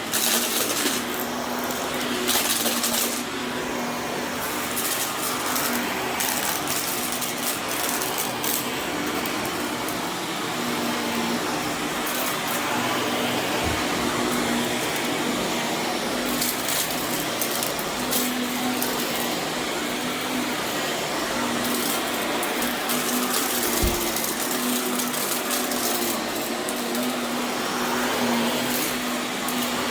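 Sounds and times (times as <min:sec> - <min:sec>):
vacuum cleaner on carpet: 0:00.0 - 0:29.9.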